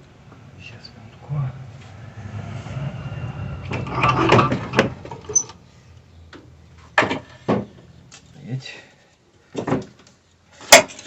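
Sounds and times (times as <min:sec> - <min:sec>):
radiator scraping and rubbing: 0:00.7 - 0:08.4.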